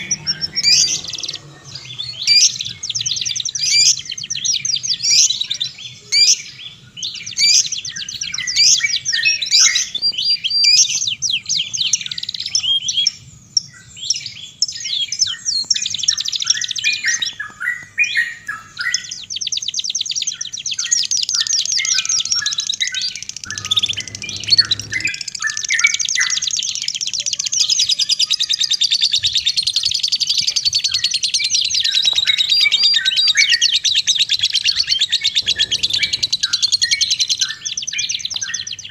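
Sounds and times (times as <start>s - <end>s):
songbird chirps and trill: 0.0s - 38.9s.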